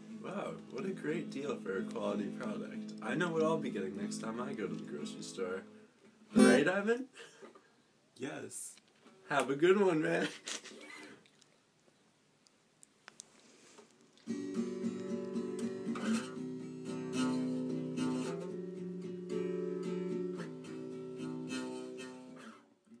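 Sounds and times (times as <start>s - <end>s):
strummed acoustic guitar: 0.0s - 6.8s, 14.2s - 23.0s
faint clicks: 11.0s - 14.3s.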